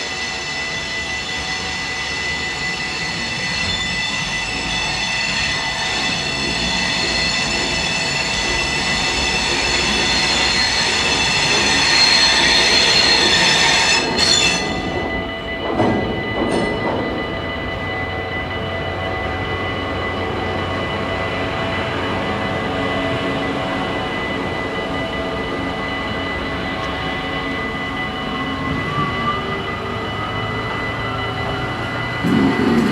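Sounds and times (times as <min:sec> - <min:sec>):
crossing warning bells: 0:00.0 - 0:32.9
train wheels squealing: 0:00.0 - 0:32.9.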